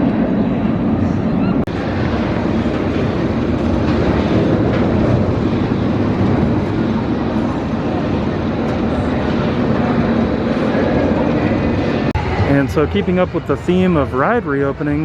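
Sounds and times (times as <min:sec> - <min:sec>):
roller coaster rumbling on track: 0:00.0 - 0:15.0.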